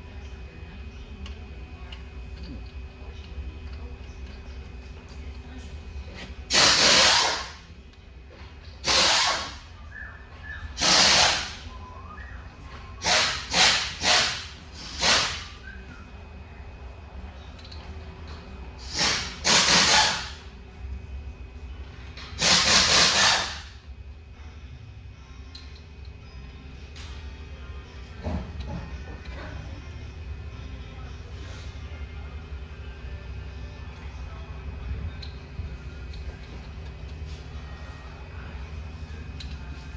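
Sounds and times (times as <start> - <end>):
pneumatic tool bursts: 6.5 - 7.6, 8.8 - 9.7, 10.8 - 11.7, 13.0 - 15.6, 18.8 - 20.4, 22.3 - 23.8
low steady hum: 23.7 - 39.9.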